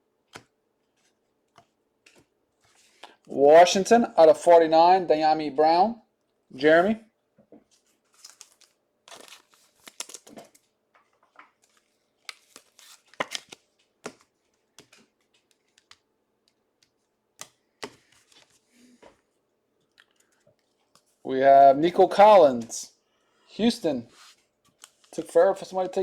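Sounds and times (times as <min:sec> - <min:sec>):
wrappers crinkling and rustling: 0:07.7 - 0:16.0
wrappers tearing: 0:08.1 - 0:10.6.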